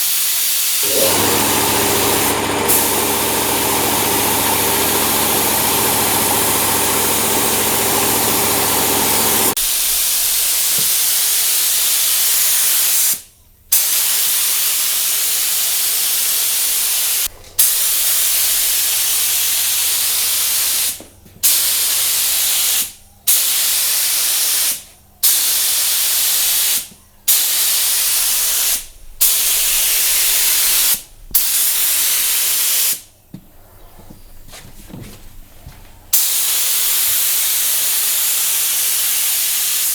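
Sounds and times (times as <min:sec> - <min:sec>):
paint spray gun hissing: 0:00.1 - 0:13.2, 0:13.8 - 0:33.0, 0:36.2 - 0:39.9
motor humming: 0:00.8 - 0:09.6, 0:17.3 - 0:19.2.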